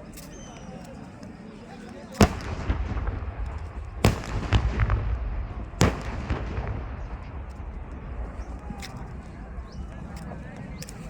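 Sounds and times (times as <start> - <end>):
smaller pops: 2.2 - 9.4
gas cylinders exploding: 2.2 - 9.6.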